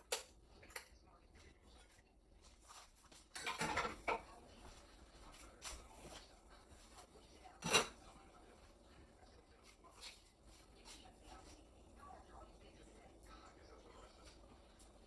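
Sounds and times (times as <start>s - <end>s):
kitchen clatter and rustle: 0.0s - 11.8s.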